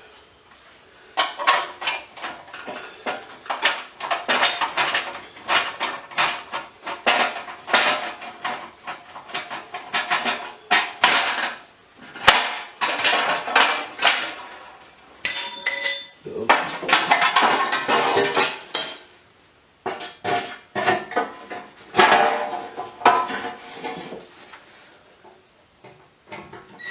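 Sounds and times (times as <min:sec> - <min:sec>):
metal parts clinking: 0:15.2 - 0:16.3.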